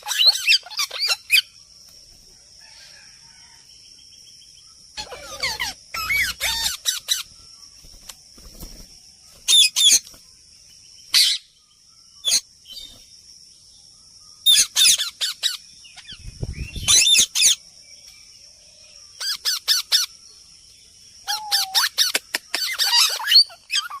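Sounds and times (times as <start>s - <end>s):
parrots squawking: 0.0s - 1.5s, 5.0s - 7.3s, 21.3s - 24.0s.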